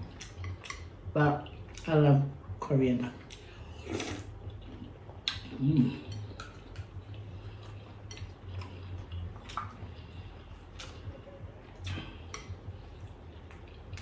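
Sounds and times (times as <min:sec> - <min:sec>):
slurping mouth noises: 0:03.4 - 0:10.1
person humming: 0:05.6 - 0:06.1.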